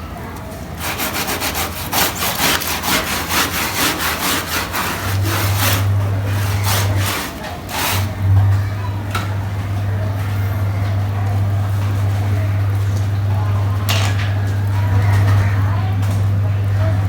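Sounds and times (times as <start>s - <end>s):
low machine hum: 0.0s - 17.0s
stiff brush scrubbing wet carpet: 0.8s - 8.2s.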